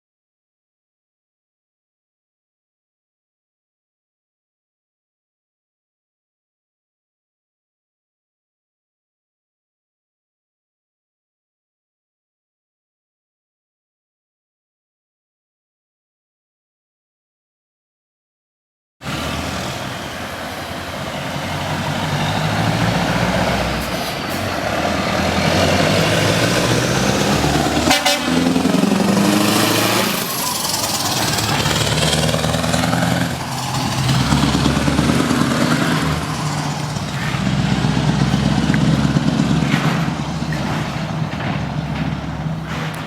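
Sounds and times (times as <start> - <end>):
truck engine through straight exhaust: 19.0 - 43.0.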